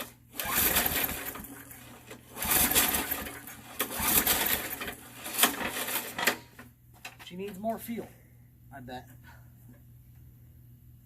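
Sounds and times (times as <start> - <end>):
lawn mower recoil starter rattling: 0.0 - 7.6.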